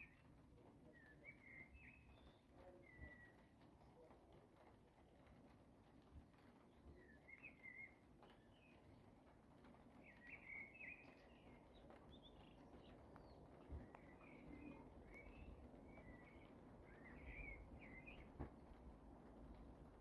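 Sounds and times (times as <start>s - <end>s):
faint bird chirps: 0.0s - 4.1s, 6.8s - 8.9s, 10.0s - 18.4s
low background hiss: 0.0s - 20.0s.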